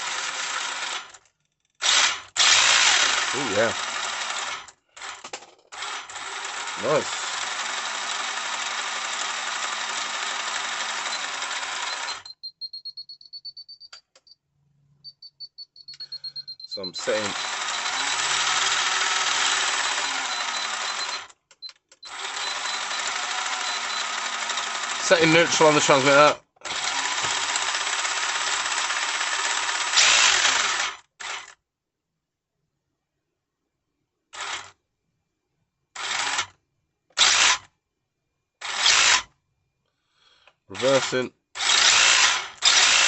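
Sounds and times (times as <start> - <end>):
electric motor and gears whirring: 0.0 - 12.2, 15.9 - 31.6, 34.3 - 34.8, 36.0 - 36.6, 37.2 - 37.7, 38.6 - 39.3, 40.7 - 43.0
electric motor whine: 17.0 - 21.2.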